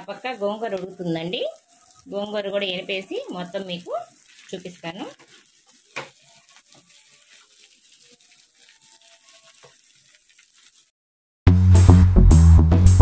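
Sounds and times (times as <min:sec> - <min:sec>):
meat sizzling in a frying pan: 0:00.0 - 0:10.9
electronic music with steady beat: 0:11.5 - 0:13.0.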